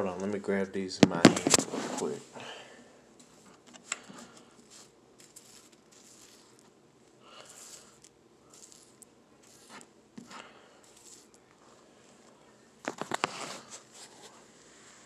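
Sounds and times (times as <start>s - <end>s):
dried crickets rustling and clicking: 7.4s - 9.8s, 10.8s - 11.6s.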